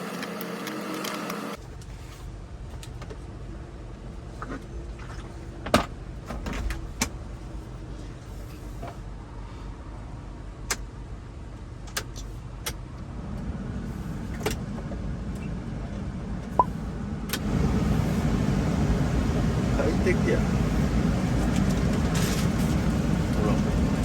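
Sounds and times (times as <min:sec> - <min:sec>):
blower fan hum and rush: 0:12.4 - 0:24.0.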